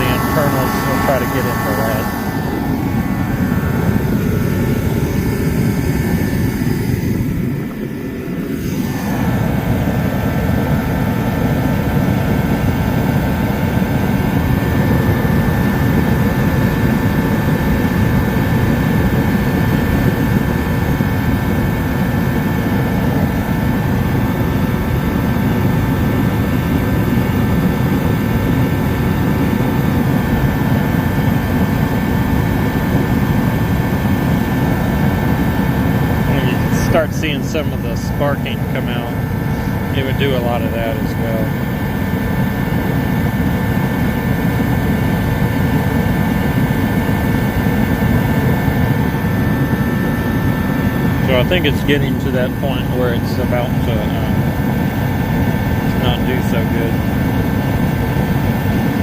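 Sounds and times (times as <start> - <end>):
heater burner and fan roar: 0.0 - 59.0
thin whine: 0.0 - 59.0.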